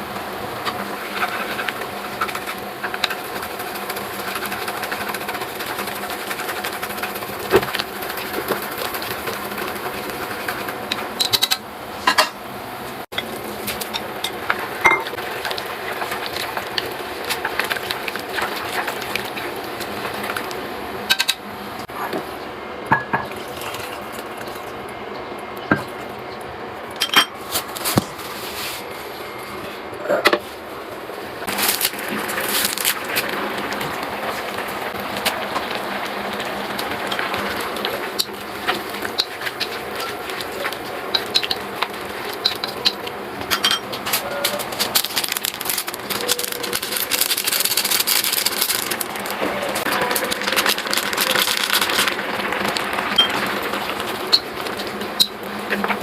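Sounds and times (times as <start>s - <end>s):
metal utensils clinking on pans: 42.4s - 44.9s.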